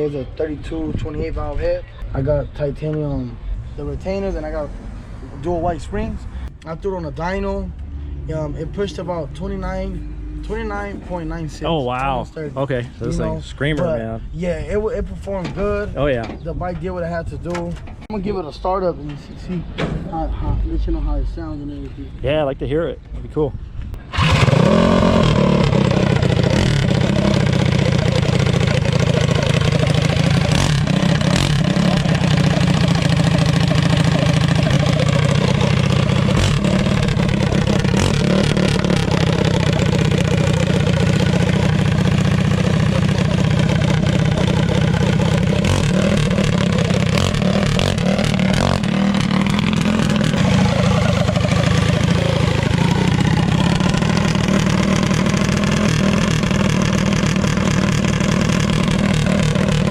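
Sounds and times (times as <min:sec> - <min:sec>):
minibike engine running loudly: 0:24.1 - 0:59.9.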